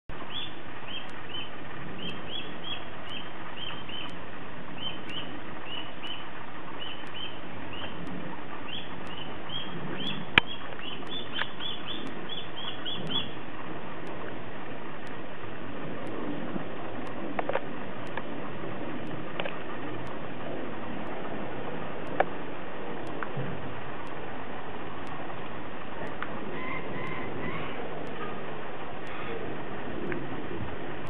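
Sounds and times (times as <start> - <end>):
bird chirping: 0.2 - 13.4, 26.0 - 28.4
sharp click: 9.0 - 13.3, 22.0 - 22.4.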